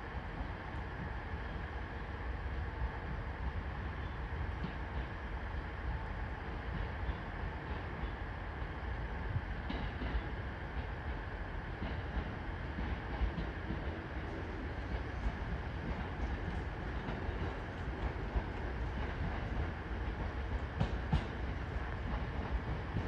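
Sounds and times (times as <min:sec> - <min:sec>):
train low rumble: 0:00.0 - 0:23.0
wheels clicking over rail joints: 0:11.8 - 0:23.0.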